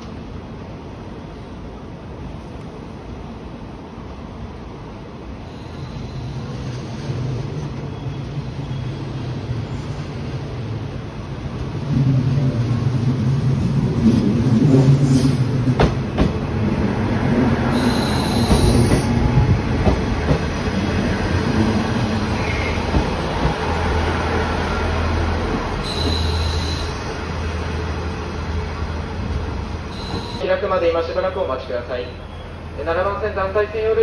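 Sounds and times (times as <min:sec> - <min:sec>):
train engine hum: 0:00.0 - 0:34.0
high-pitched squeal: 0:05.5 - 0:10.4, 0:17.7 - 0:19.2
wheels clacking over rail joints: 0:14.0 - 0:17.6, 0:18.2 - 0:24.6.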